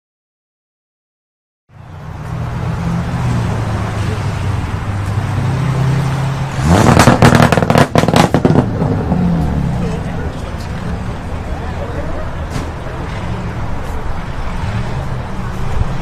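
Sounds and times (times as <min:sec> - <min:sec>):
car engine rumbling and revving: 0:01.7 - 0:16.0
loud sharp exhaust cracks: 0:06.5 - 0:09.5.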